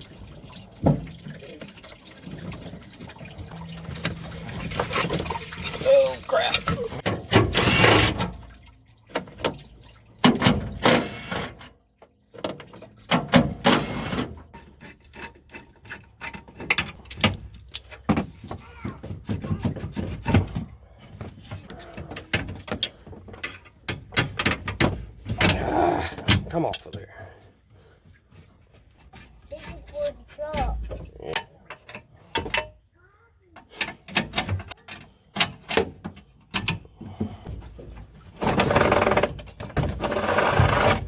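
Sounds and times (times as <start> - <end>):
hand tools clanking on metal: 13.2 - 27.4
metal clicks and knocks: 15.2 - 20.7, 21.5 - 25.6.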